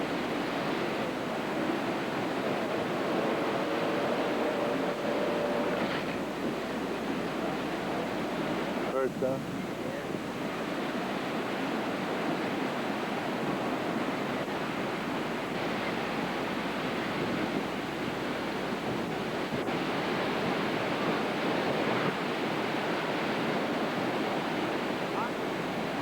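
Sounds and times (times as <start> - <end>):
strong wind: 0.0 - 26.0
surf breaking waves: 0.0 - 26.0.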